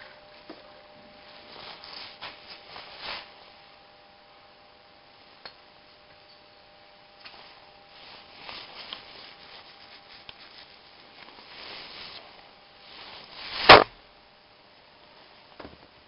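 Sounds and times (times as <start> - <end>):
soft scraping and rubbing: 7.4 - 13.7
sharp loud knock: 13.6 - 13.9.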